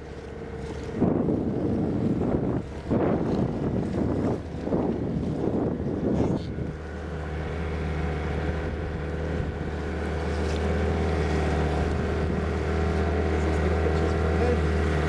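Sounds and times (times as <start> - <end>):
low engine hum: 0.0 - 15.0
rush of wind-like noise: 1.0 - 7.7.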